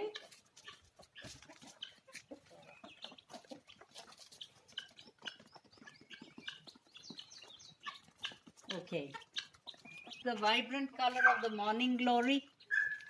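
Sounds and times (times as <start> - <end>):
chickens and guinea fowl calling: 0.0 - 13.0.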